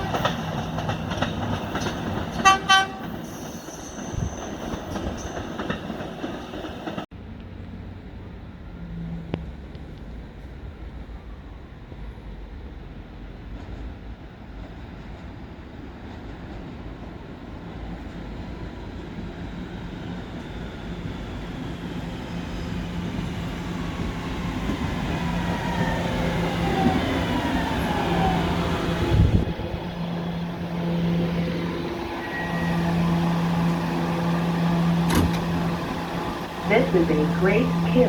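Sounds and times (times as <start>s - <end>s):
train standing low hum: 0.0s - 38.0s
electric train braking whine: 25.7s - 38.0s.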